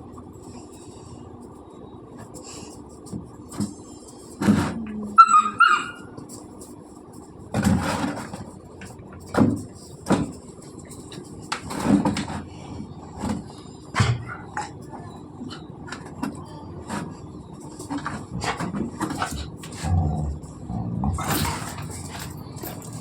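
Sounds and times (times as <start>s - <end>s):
puppy yapping and yelping: 5.2s - 6.2s.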